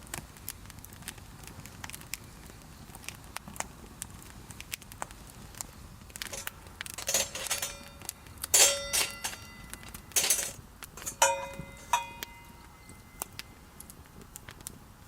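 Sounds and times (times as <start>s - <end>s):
campfire crackling: 0.0s - 15.0s
metal utensil striking frying pan: 6.3s - 13.3s.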